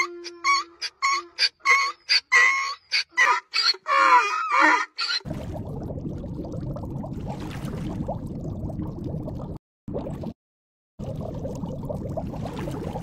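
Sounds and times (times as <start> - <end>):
donkey braying: 0.0 - 5.2
water bubbling: 5.2 - 10.4, 11.0 - 13.0.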